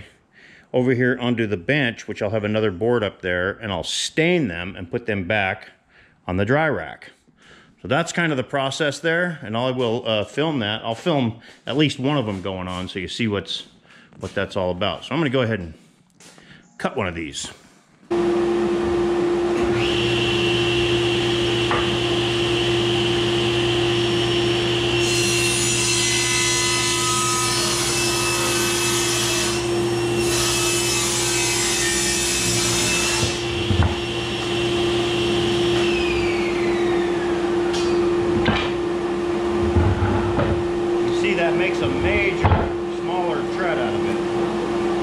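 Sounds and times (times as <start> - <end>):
table saw running: 18.1 - 45.0
saw blade cutting wood: 19.5 - 38.9, 39.5 - 44.2.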